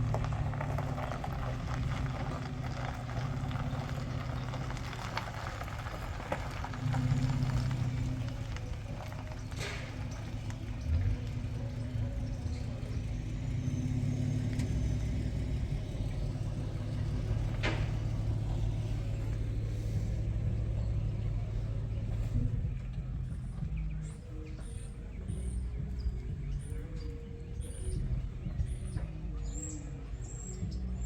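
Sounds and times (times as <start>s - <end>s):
low engine hum: 0.0s - 31.0s.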